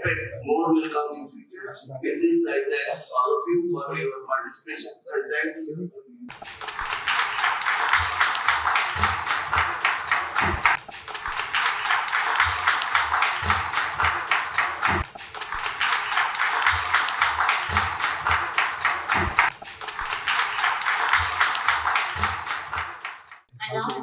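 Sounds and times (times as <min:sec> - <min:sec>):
audience applauding: 0:06.3 - 0:24.0.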